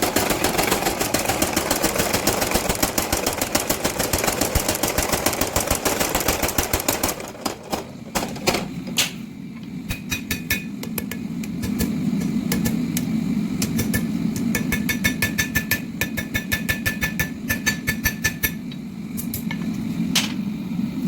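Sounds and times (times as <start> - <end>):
hammer ringing on anvil: 9.9 - 10.7.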